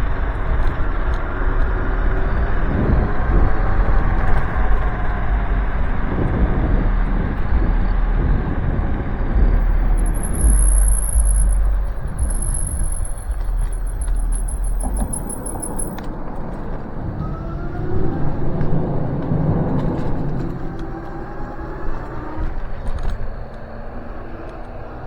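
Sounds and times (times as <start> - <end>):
wind buffeting microphone: 0.0 - 23.9
tyre rumble: 0.2 - 16.1
thin high-pitched whine: 9.4 - 16.5.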